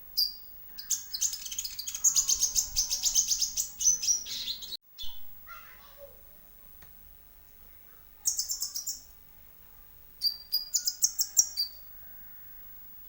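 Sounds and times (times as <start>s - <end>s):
sunbird twittering song: 0.2s - 5.2s, 8.2s - 9.2s, 10.2s - 11.8s.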